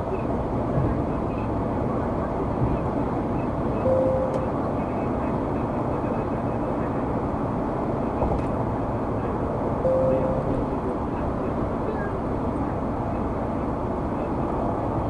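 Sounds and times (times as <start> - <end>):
car road and engine noise: 0.0 - 15.0
short electronic beep: 3.8 - 4.5, 9.8 - 10.7.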